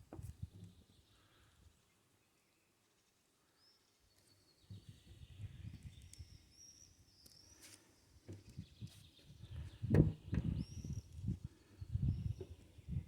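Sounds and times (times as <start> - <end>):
faint bird chirps: 3.4 - 13.0.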